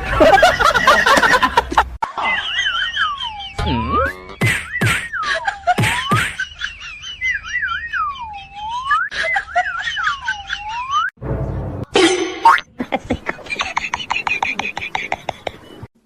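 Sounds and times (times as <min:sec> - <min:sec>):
whistling trill: 0:02.8 - 0:11.1.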